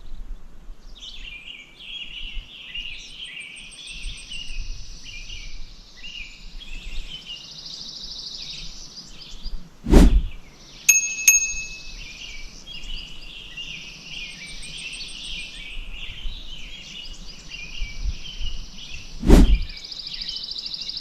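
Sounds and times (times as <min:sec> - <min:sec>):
high steady hiss: 0:00.0 - 0:21.0
songbirds chirping: 0:00.0 - 0:21.0
bright ringing pings: 0:10.9 - 0:12.0.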